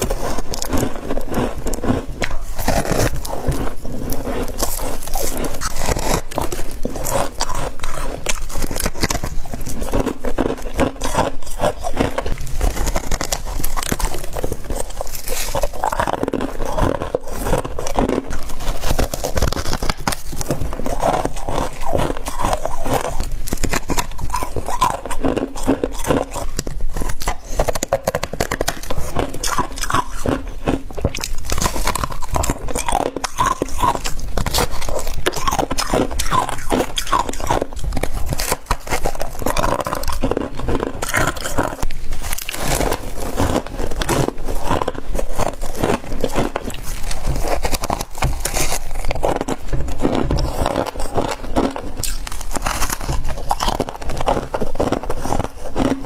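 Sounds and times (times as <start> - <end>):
crunching and chewing ice: 0.0 - 56.0.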